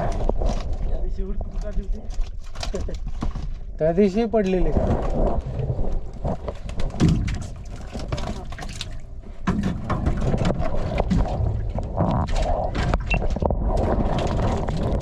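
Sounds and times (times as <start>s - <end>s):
water splashes: 4.4s - 15.0s
knocks from boat: 6.7s - 8.8s, 9.4s - 13.1s.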